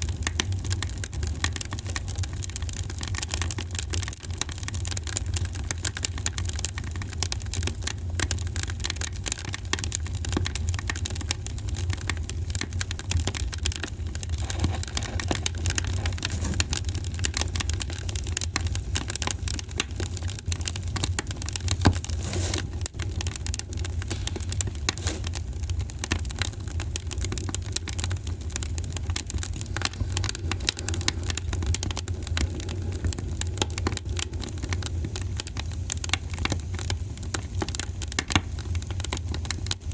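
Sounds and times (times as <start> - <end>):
wood fire crackling: 0.0 - 39.9
steady low rumble: 28.5 - 36.1.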